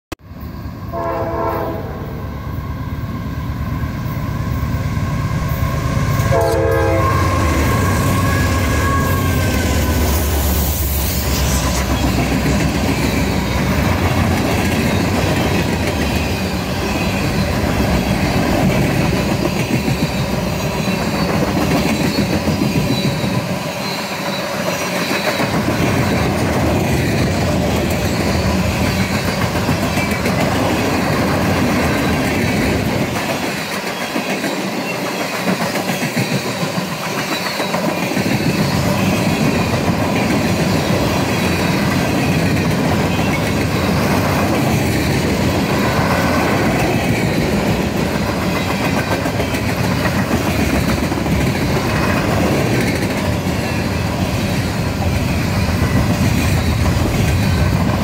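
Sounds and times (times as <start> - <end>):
train wheels rumbling on rails: 0.2 - 58.0
locomotive passing: 0.3 - 58.0
train horn blasts: 0.9 - 2.3, 5.4 - 10.0.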